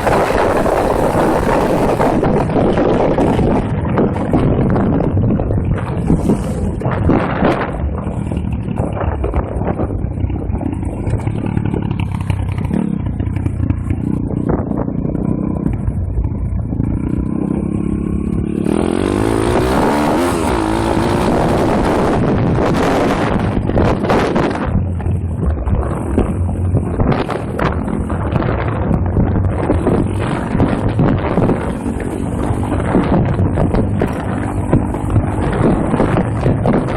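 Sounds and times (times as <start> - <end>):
wind noise: 0.0 - 36.9
small motorbike engine revving: 17.1 - 24.6.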